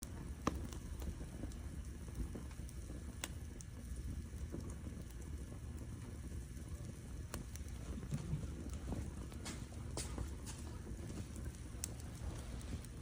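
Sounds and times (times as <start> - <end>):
firewood crackling and popping: 0.0 - 13.0
rumble of flames: 0.0 - 13.0.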